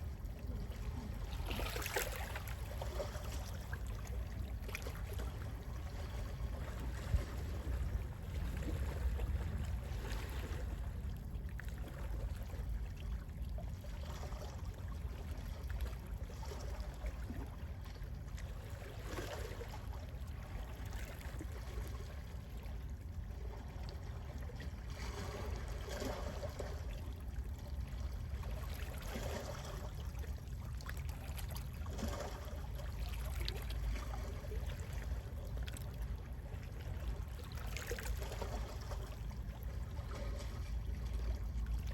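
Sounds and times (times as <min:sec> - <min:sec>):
steady low rumble: 0:00.0 - 0:18.7
sea waves lapping: 0:00.0 - 0:41.9.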